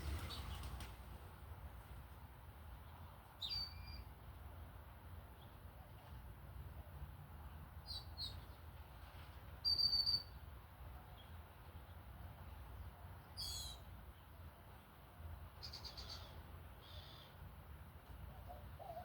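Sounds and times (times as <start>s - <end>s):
small birds calling: 0.0s - 0.9s
low steady rumble: 0.0s - 2.2s.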